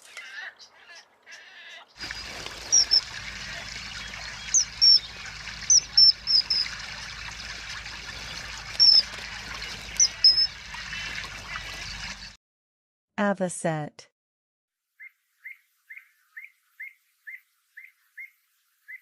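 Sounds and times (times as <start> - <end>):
high bird chirps: 2.0 - 12.3, 15.0 - 19.0
water trickling: 2.0 - 12.4.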